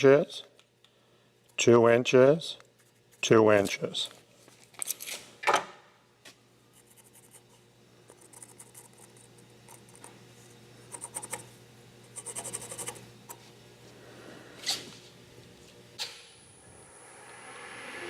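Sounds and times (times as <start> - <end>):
steady low hum: 0.0 - 18.0
pencil scratching on wood: 12.2 - 13.0.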